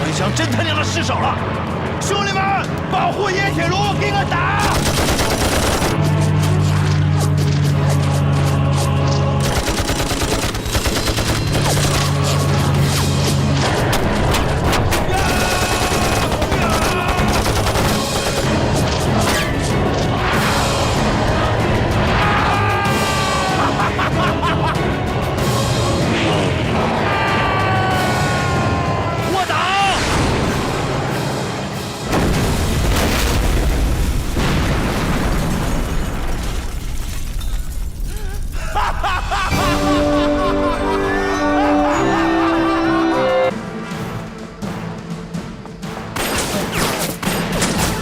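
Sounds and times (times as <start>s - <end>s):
dramatic music score: 0.0s - 35.8s, 38.1s - 48.0s
rifle and machine-gun fire: 4.6s - 6.1s, 9.4s - 12.5s, 13.8s - 19.5s
bombs exploding: 32.1s - 38.6s.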